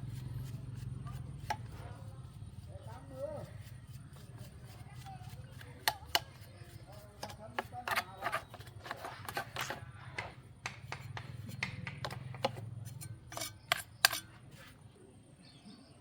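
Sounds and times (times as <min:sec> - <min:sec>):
clicks and knocks on metal parts: 0:07.2 - 0:14.4.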